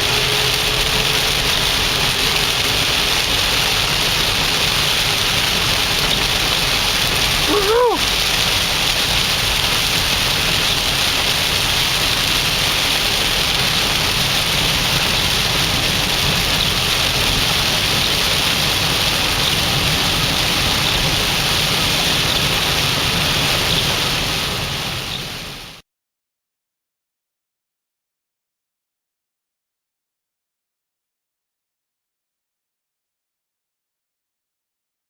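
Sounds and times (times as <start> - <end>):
heavy rain hissing on car: 0.0 - 25.8
tyres rumbling on wet road: 0.0 - 25.8.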